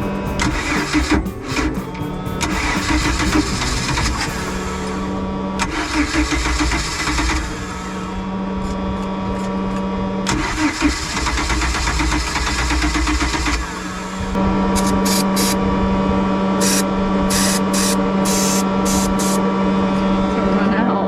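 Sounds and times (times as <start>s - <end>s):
boat engine starter cranking: 0.0s - 5.0s, 5.6s - 8.0s, 10.2s - 13.6s.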